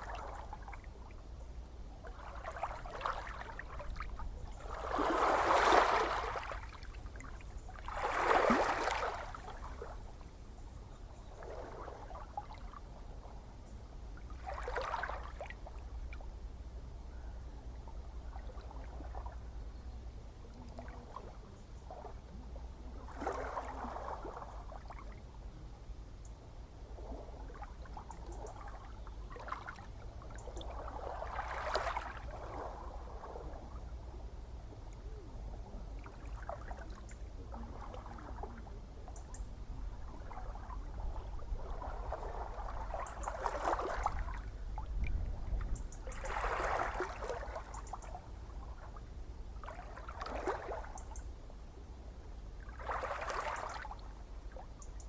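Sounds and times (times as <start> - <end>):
ocean waves breaking: 4.7 - 6.6, 7.9 - 9.9.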